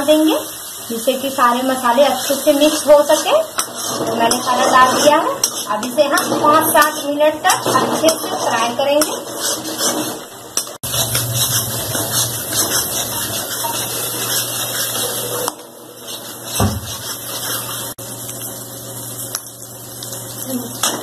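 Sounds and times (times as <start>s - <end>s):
paste sizzling in hot oil: 0.0s - 7.3s, 8.1s - 21.0s
steel spatula scraping a pan: 1.4s - 18.0s.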